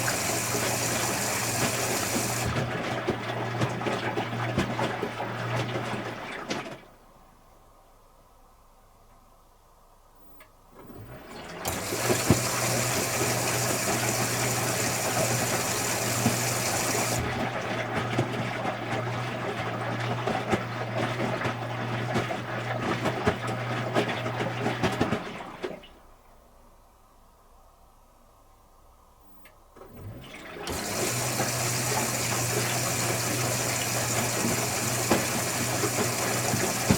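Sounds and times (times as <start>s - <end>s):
water rushing in washing machine: 0.0s - 7.0s, 10.8s - 26.0s, 29.8s - 36.9s.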